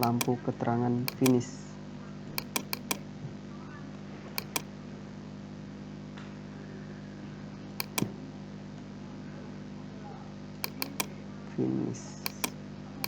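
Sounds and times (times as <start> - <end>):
computer mouse clicking: 0.0 - 0.4, 1.1 - 1.4, 2.4 - 3.0, 4.4 - 4.7, 7.8 - 8.1, 10.6 - 11.1, 12.3 - 12.6.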